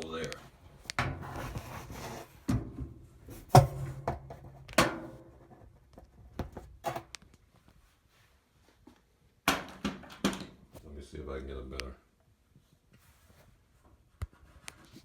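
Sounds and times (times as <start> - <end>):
knocks and bumps: 1.0 - 7.1.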